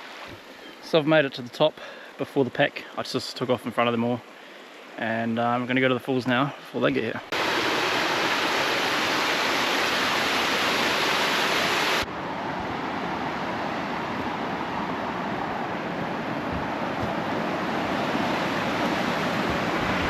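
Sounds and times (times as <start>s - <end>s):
waterfall rushing: 7.3s - 20.0s.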